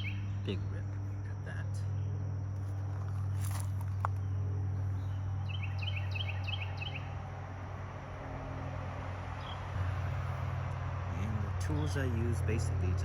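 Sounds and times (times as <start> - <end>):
small bird chirping: 0.0 - 0.8, 1.9 - 7.2
steady low hum: 0.0 - 13.0.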